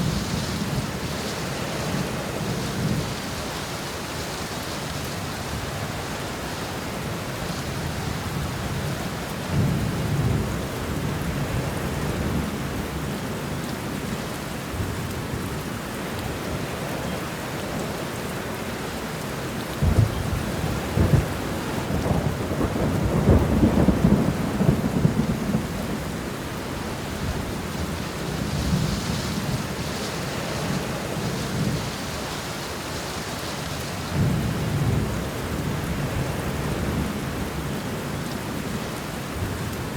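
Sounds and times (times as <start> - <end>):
heavy rain: 0.0 - 39.9
sharp thunder claps: 19.8 - 25.8
thunder rumbling: 19.8 - 32.8.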